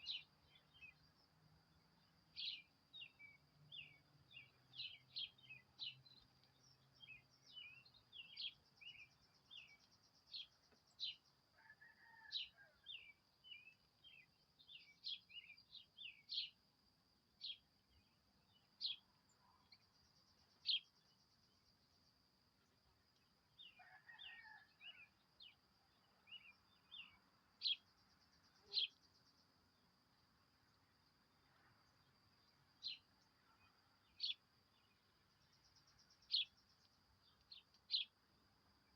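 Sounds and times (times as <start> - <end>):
small birds chirping: 0.0 - 1.3, 2.3 - 11.3, 12.9 - 16.6, 26.3 - 29.5, 32.7 - 38.9.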